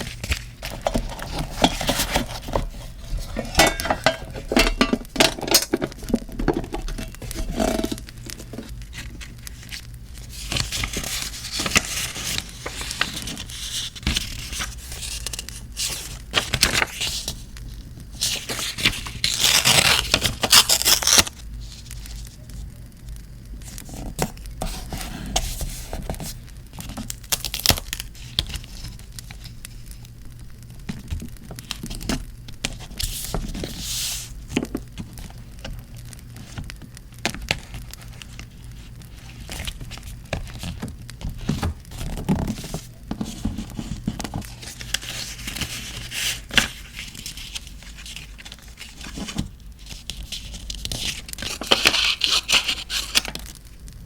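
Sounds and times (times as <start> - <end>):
paper tearing and crinkling: 7.0 - 17.5, 18.2 - 22.3, 37.3 - 53.6.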